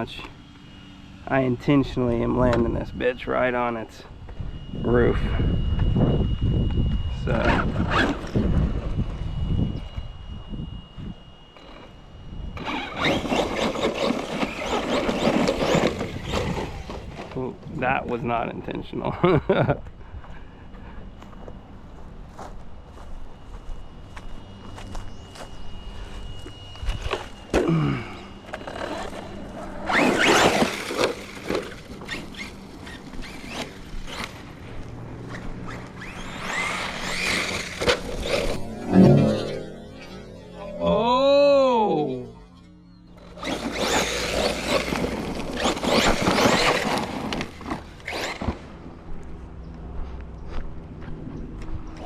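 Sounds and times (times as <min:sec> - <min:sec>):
electric motor revving whine: 0:00.0 - 0:18.8, 0:20.3 - 0:50.0
tyre and ground noise: 0:12.6 - 0:18.5, 0:19.7 - 0:52.0
tyres scrabbling: 0:12.7 - 0:17.4, 0:35.7 - 0:38.7, 0:43.4 - 0:48.6.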